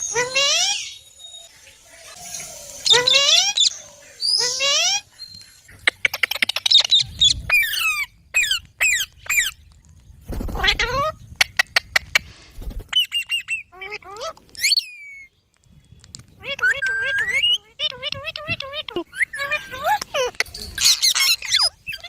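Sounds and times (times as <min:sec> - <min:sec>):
parrot squawking: 0:02.8 - 0:05.1, 0:16.4 - 0:22.0
parrot clicking chatter: 0:05.7 - 0:09.6.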